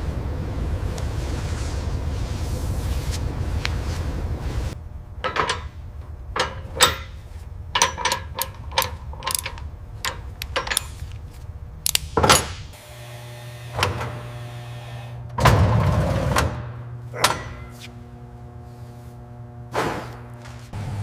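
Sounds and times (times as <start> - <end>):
steady low hum: 0.0 - 21.0
sharp mechanical clicks and knocks: 7.8 - 11.0.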